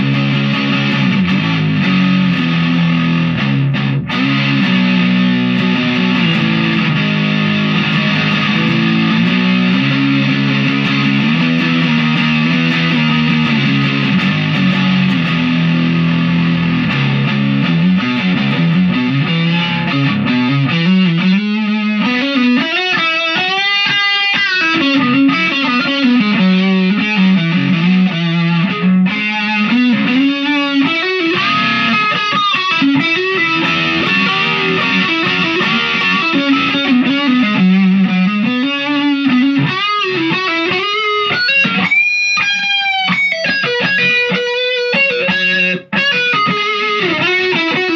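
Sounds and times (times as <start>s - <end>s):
distorted electric guitar: 0.0s - 47.9s.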